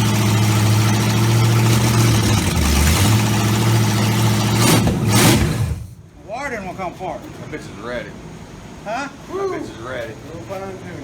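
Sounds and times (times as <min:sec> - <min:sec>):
car engine idling: 0:00.0 - 0:06.1.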